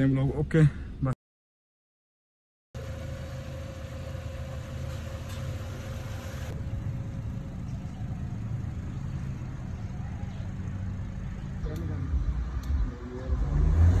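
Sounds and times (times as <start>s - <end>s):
car engine idling: 2.8s - 13.3s.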